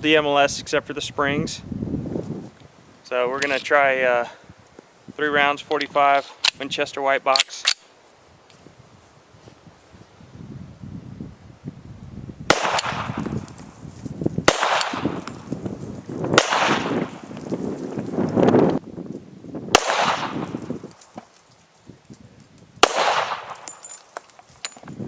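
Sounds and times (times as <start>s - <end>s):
pistol gunshots: 12.5s - 13.3s, 14.4s - 15.5s, 16.4s - 17.2s, 19.7s - 20.6s, 22.8s - 23.8s
rolling gunshot echo: 14.5s - 15.3s, 16.4s - 17.2s, 19.7s - 20.6s, 22.8s - 23.6s.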